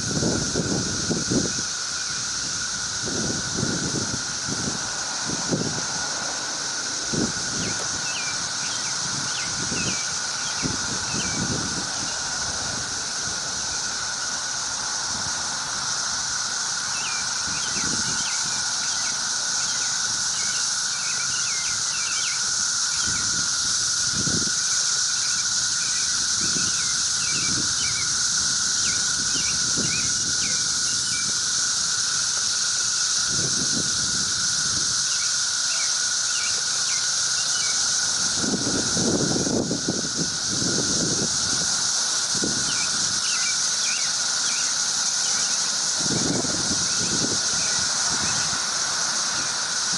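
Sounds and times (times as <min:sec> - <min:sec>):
cicadas droning: 0:00.0 - 0:49.9.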